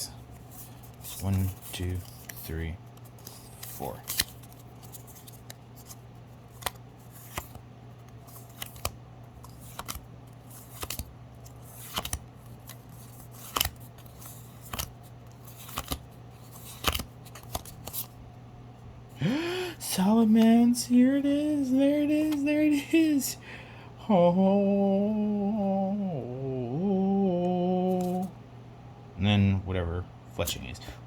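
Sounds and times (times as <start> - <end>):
steady low hum: 0.0 - 31.0
cards flicking: 1.9 - 18.1, 22.2 - 22.5.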